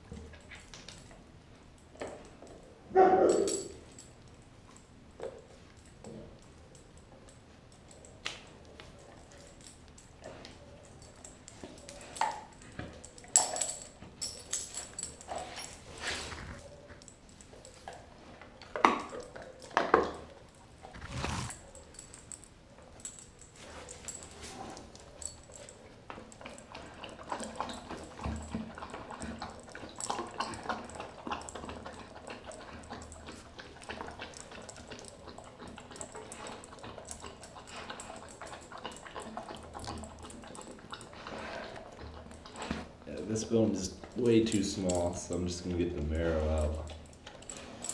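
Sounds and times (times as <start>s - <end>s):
dog gnawing a bone: 24.7s - 43.1s.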